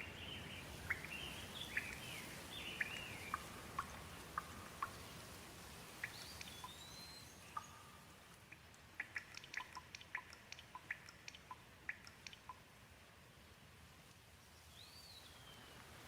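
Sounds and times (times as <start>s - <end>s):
gentle rain hissing: 0.0s - 16.0s
drops dripping: 7.5s - 12.7s.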